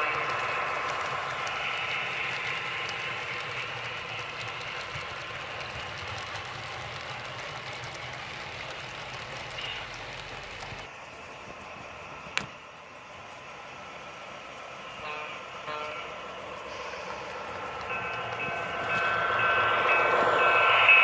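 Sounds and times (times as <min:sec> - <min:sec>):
model train rumbling on track: 0:00.0 - 0:21.0.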